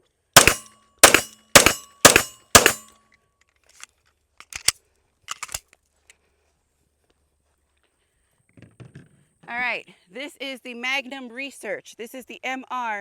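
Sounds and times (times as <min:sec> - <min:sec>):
pistol shots: 0:00.4 - 0:02.9
sharp clicks and clacks: 0:00.4 - 0:02.9, 0:04.4 - 0:04.7, 0:05.3 - 0:05.6.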